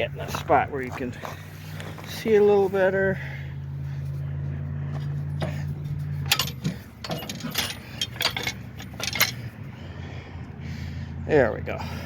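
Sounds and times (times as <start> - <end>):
steady low hum: 0.0 - 12.0
metallic clicks and clinks: 6.2 - 9.5.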